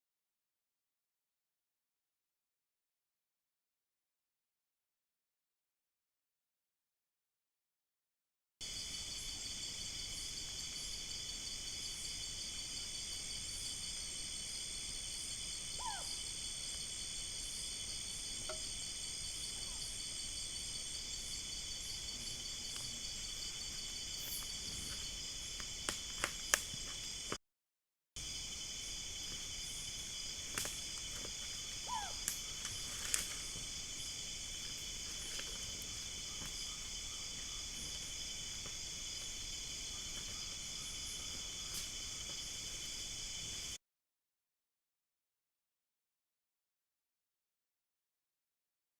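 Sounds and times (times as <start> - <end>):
insects buzzing and trilling: 8.6 - 27.4, 28.2 - 43.8.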